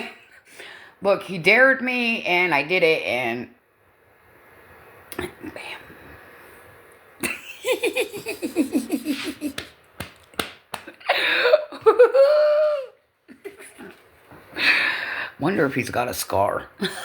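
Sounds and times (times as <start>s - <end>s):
woman laughing hard: 7.2s - 9.6s, 10.9s - 14.0s, 16.8s - 17.0s
sharp smacks: 9.5s - 11.0s.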